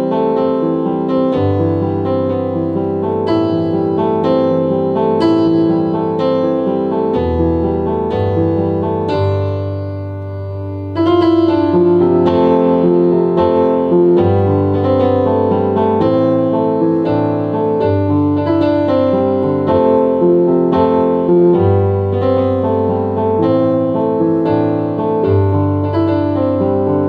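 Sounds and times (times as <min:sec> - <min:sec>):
piano melody: 0:00.0 - 0:27.0.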